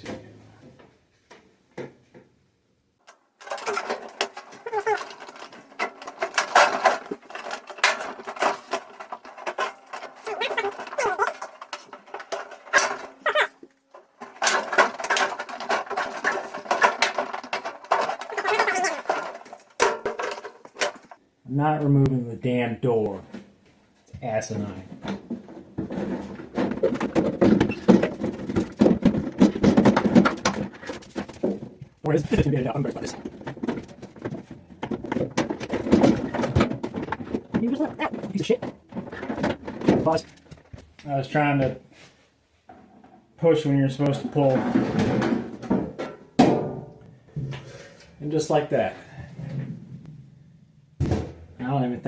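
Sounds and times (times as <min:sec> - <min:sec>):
metal and plastic parts rattling: 0:03.0 - 0:21.2, 0:24.9 - 0:41.1, 0:44.0 - 0:46.3.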